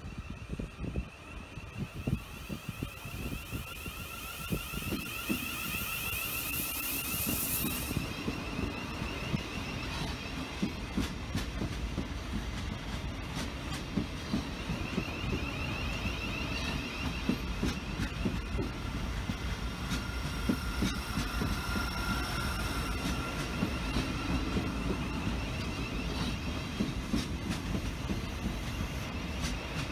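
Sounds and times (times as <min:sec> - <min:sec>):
high steady whine: 0:00.0 - 0:11.2, 0:14.5 - 0:27.0
train wheels clicking over rail joints: 0:01.0 - 0:29.9
loud hiss: 0:03.5 - 0:08.4.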